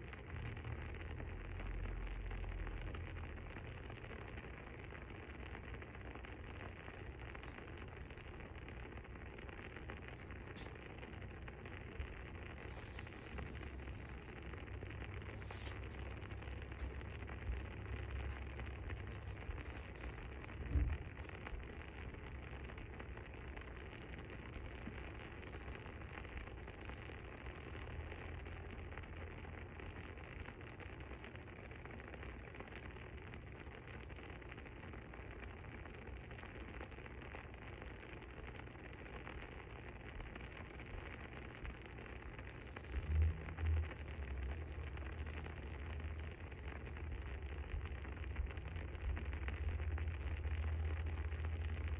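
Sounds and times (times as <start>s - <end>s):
fire crackling: 0.0s - 51.9s
low rumble: 9.8s - 23.0s, 42.3s - 51.9s
dull low thumps: 42.8s - 51.9s.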